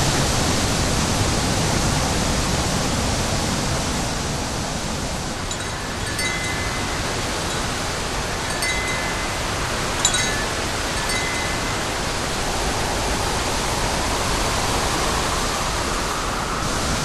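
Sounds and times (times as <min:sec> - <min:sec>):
strong wind blowing: 0:00.2 - 0:17.0
high ringing tones: 0:05.4 - 0:12.9.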